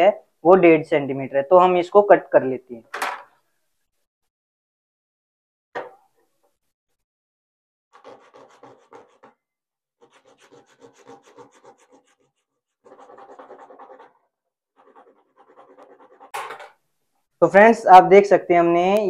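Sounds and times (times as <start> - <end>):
wood rasping on sandpaper: 8.0 - 9.3, 10.0 - 14.2, 14.8 - 16.3.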